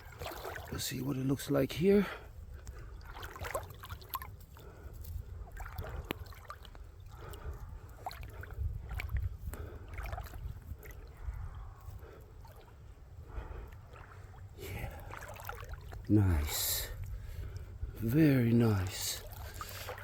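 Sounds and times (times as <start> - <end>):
small splashes and clicks: 0.0 - 1.0, 2.5 - 12.8, 13.6 - 16.1, 18.9 - 20.0
creek water trickling over rocks: 0.0 - 13.0, 13.6 - 20.0
steady low rumble: 1.6 - 20.0.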